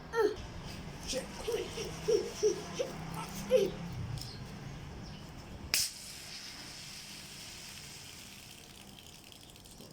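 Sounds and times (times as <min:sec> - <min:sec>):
plastic bottle opening hiss: 0:05.7 - 0:08.0
soda fizzing: 0:05.8 - 0:09.9.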